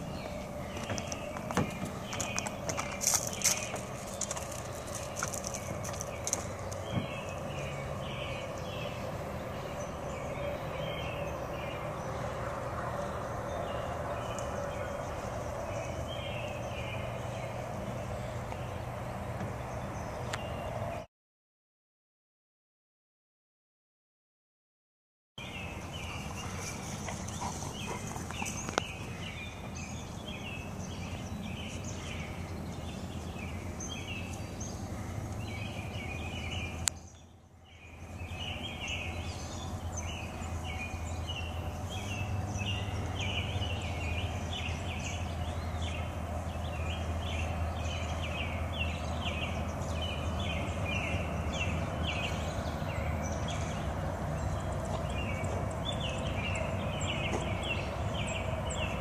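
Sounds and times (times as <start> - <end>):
birds chirping: 0.0 - 21.1, 25.4 - 59.0.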